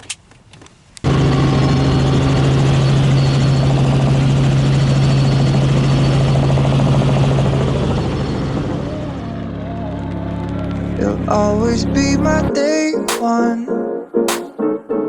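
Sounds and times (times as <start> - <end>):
helicopter drone: 1.0 - 12.5.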